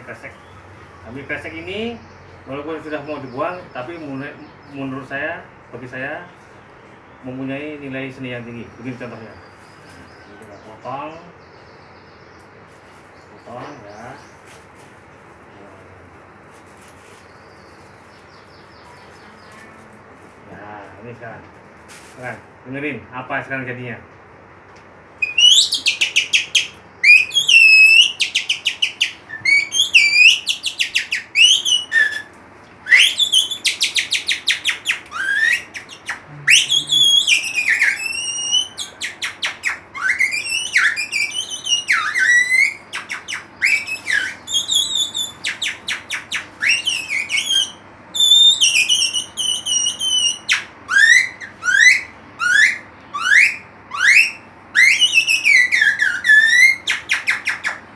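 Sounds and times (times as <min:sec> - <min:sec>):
whistled bird-call imitation: 0:25.2 - 0:57.8.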